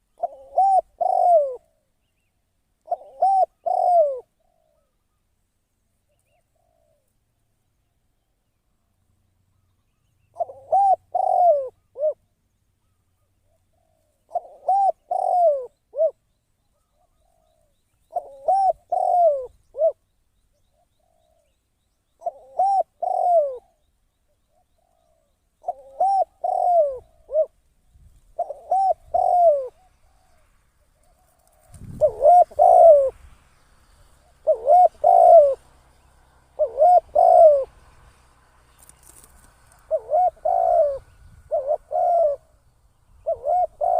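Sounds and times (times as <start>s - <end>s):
dove cooing: 0.0s - 2.0s, 2.8s - 5.0s, 6.2s - 7.1s, 10.2s - 20.0s, 22.2s - 27.6s, 28.3s - 33.2s, 34.2s - 37.9s, 38.8s - 43.9s.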